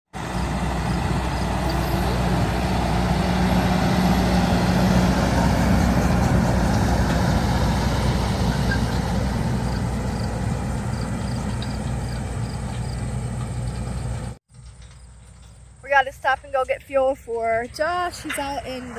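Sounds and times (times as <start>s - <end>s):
tractor engine droning: 0.1s - 18.9s.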